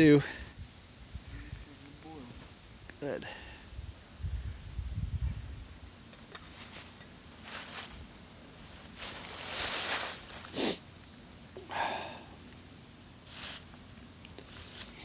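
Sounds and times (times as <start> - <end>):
rustling and shuffling: 6.2 - 11.6, 12.4 - 15.0.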